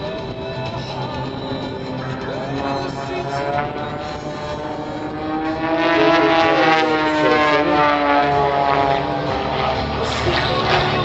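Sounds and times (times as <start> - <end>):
propeller plane engines: 0.0 - 11.0.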